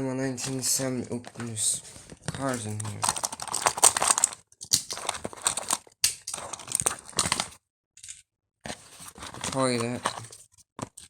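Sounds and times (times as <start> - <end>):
toy cars clattering on plastic: 2.5 - 8.2.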